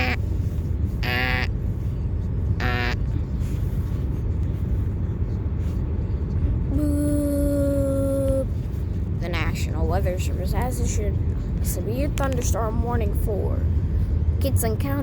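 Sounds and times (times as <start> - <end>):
buzzy warning beeps: 0.0 - 0.2, 2.6 - 3.0
steady warning tone: 0.0 - 0.2, 2.6 - 3.1
constant low rumble: 0.0 - 15.0.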